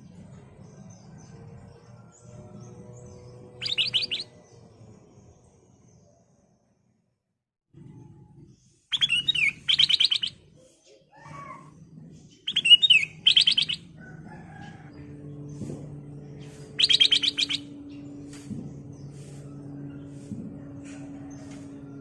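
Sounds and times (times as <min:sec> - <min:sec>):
bird singing whistles and rattles: 0:03.6 - 0:04.3, 0:08.9 - 0:10.4, 0:12.4 - 0:13.9, 0:16.7 - 0:18.4.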